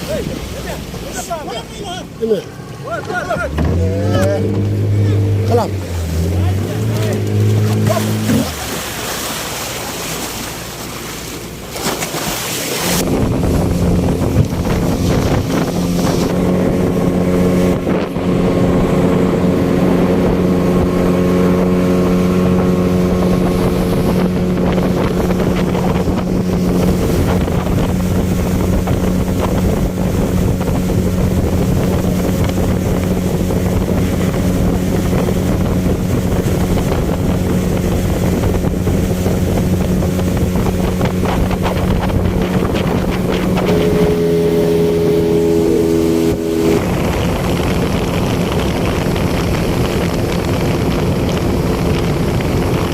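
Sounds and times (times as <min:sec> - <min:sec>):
motorboat engine running: 0:00.0 - 0:52.9
wind rushing over microphone: 0:12.2 - 0:52.9.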